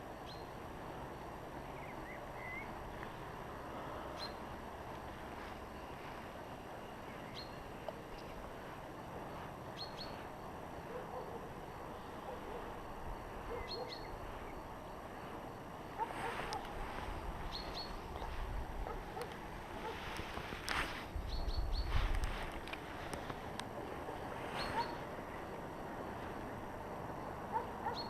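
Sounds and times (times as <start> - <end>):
outdoor background noise: 0.0 - 28.0
bird chirping: 0.2 - 0.6, 1.6 - 3.2, 4.1 - 4.5, 6.8 - 8.5, 9.3 - 12.7, 13.4 - 15.2, 17.1 - 19.9, 21.2 - 22.0, 24.1 - 25.1, 27.5 - 28.0.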